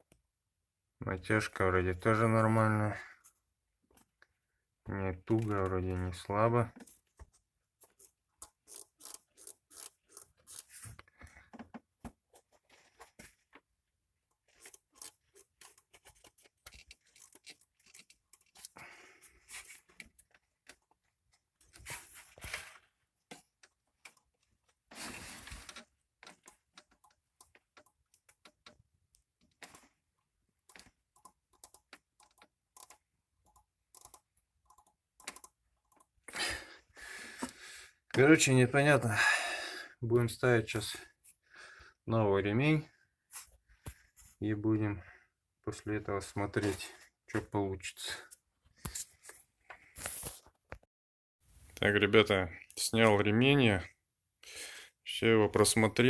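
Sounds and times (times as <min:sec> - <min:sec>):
tools clicking and tapping: 0:25.8 - 0:29.9, 0:30.6 - 0:36.2.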